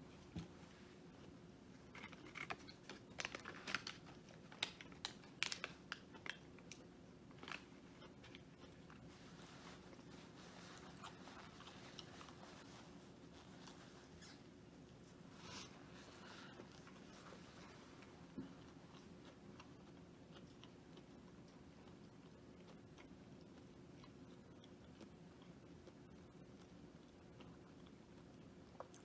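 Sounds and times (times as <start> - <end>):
crunchy food bitten and chewed: 1.1 - 9.1, 16.0 - 29.0.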